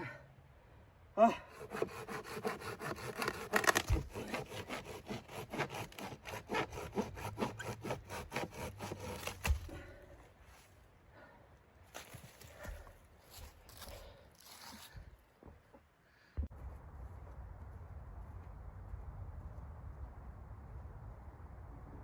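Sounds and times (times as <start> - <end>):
hand saw cutting wood: 1.5 - 9.8.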